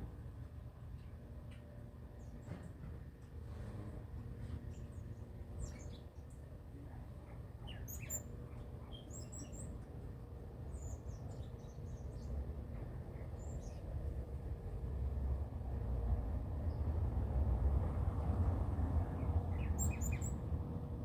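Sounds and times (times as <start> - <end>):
birds chirping: 19.5 - 20.4.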